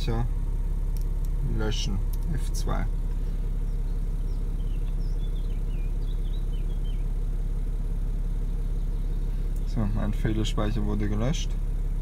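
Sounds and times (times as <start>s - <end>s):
car engine idling: 0.0s - 12.0s
faint high chirps: 3.2s - 7.2s.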